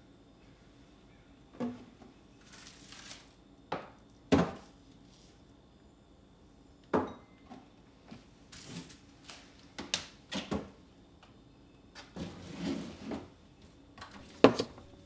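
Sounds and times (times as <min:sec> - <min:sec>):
kitchen items knocking and clunking: 0:14.2 - 0:15.0
rustling and sliding: 0:14.2 - 0:15.0.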